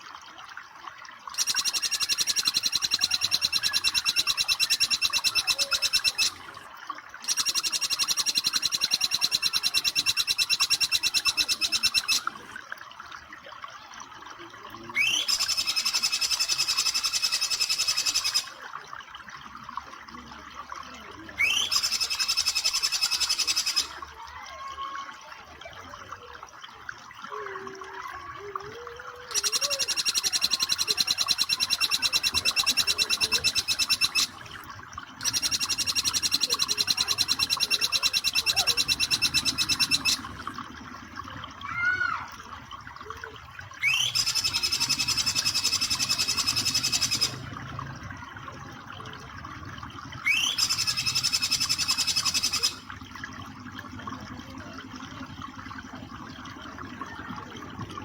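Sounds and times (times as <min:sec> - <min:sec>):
bird high trilling bursts: 0:01.3 - 0:06.6, 0:07.2 - 0:12.4, 0:15.0 - 0:18.6, 0:21.4 - 0:24.0, 0:29.3 - 0:34.6, 0:35.2 - 0:40.5, 0:43.8 - 0:47.5, 0:50.2 - 0:52.9
soft bird chirps: 0:01.4 - 0:06.6, 0:07.2 - 0:12.4, 0:15.0 - 0:18.6, 0:21.4 - 0:24.0, 0:29.3 - 0:34.6, 0:35.2 - 0:40.4, 0:43.8 - 0:47.4, 0:50.2 - 0:52.8.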